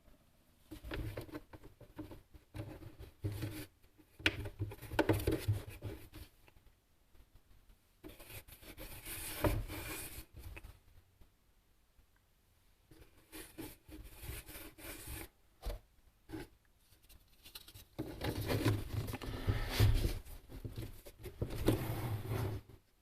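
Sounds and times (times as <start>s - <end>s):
hands rubbing and scraping materials: 16.3s - 21.9s.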